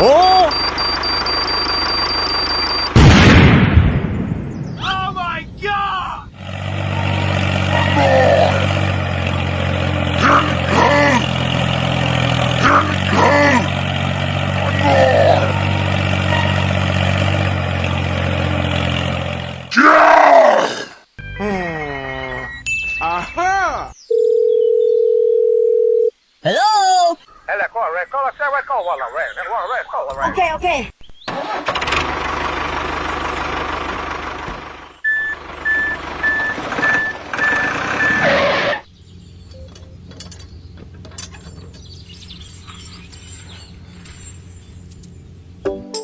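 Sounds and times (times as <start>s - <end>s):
reversing alarm beeping: 0.0s - 3.0s, 22.3s - 23.4s, 35.0s - 38.3s
engine running steadily: 6.3s - 19.7s, 31.7s - 45.7s.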